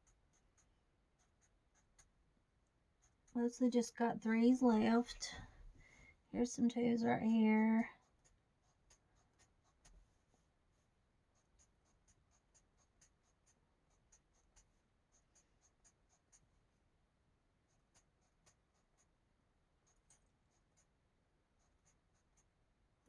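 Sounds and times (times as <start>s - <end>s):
coloring tool scratching paper: 0.0s - 2.0s, 2.9s - 3.4s, 7.9s - 16.6s, 17.6s - 19.2s, 19.8s - 22.6s.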